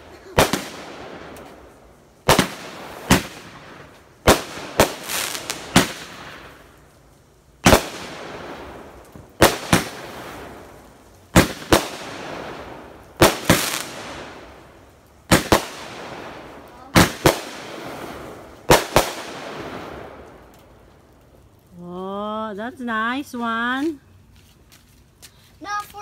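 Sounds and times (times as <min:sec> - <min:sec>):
fireworks bangs: 0:00.0 - 0:06.9, 0:07.5 - 0:21.4.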